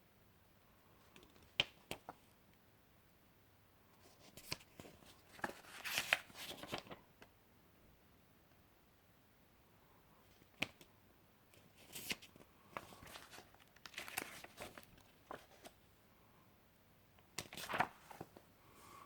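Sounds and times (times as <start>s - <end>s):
paper pages rustling: 4.0s - 7.0s, 11.6s - 15.8s, 17.3s - 18.5s.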